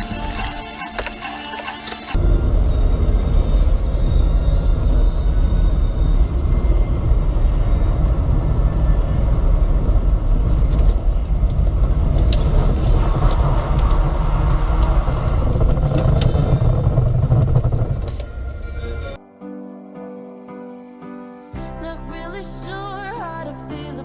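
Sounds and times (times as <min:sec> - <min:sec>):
car engine and tyre rumble: 0:02.1 - 0:19.2.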